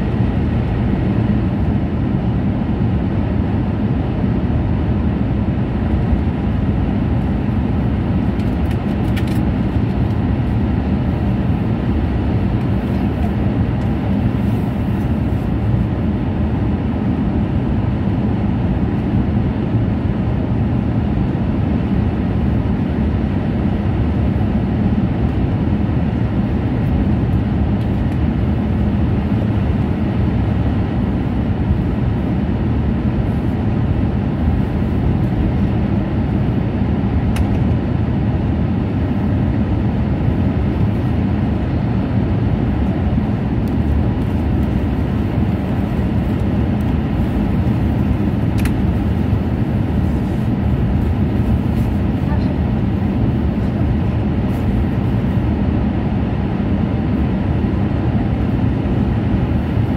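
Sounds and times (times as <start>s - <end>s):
train cabin low rumble: 0.0s - 59.9s.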